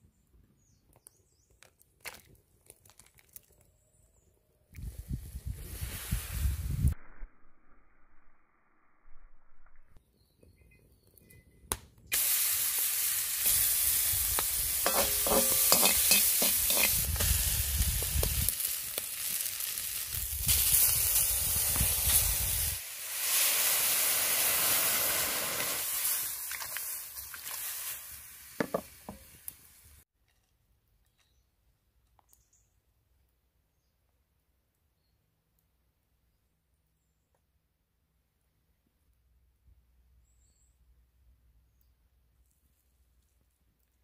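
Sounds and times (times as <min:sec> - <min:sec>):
food sizzling in a pan: 0:12.1 - 0:29.9.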